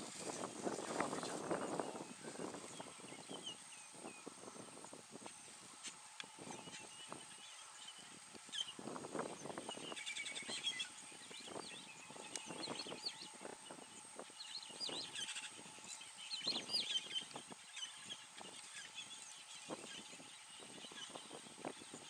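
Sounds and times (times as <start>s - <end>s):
soft rustles and crackles: 0.0s - 2.9s
small birds chirping and twittering: 0.0s - 22.0s.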